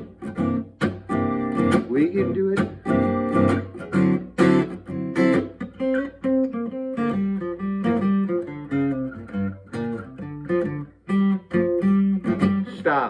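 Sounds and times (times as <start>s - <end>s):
acoustic guitar playing: 0.0s - 13.0s
person singing: 1.8s - 2.8s.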